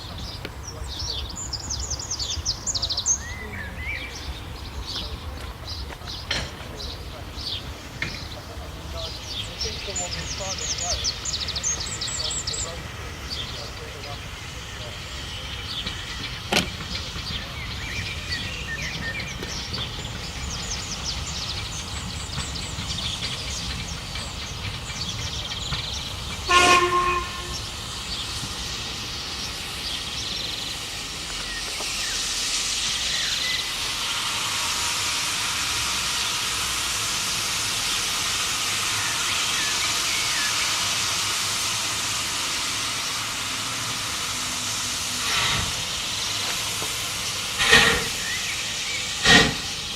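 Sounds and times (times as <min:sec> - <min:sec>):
loud steam hiss: 0:00.0 - 0:49.9
steam train rumbling: 0:00.0 - 0:49.9
train whistle blast: 0:26.4 - 0:27.8, 0:33.0 - 0:36.8.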